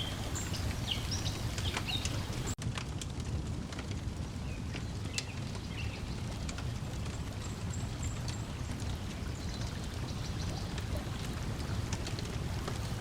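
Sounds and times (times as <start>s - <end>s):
faint high bird chirp: 0.0s - 2.5s
lake waves lapping: 0.0s - 2.6s
wood fire crackling and popping: 0.0s - 13.0s.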